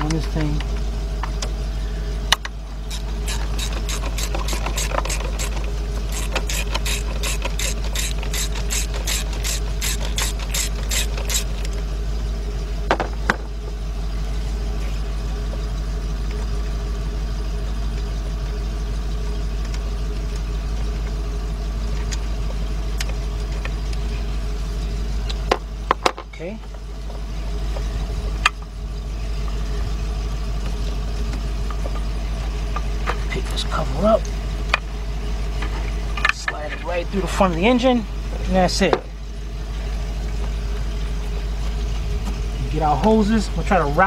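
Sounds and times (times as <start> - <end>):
steady low hum: 0.0 - 44.0
socket ratchet clicking: 2.9 - 11.6.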